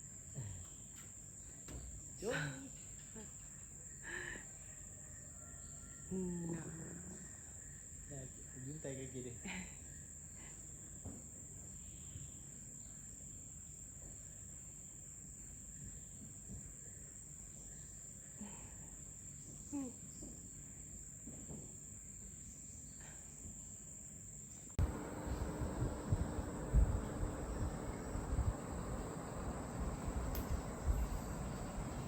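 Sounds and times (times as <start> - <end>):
faint short insect calls: 0.0 - 32.0
insects droning: 0.0 - 32.0
low hum: 24.8 - 32.0.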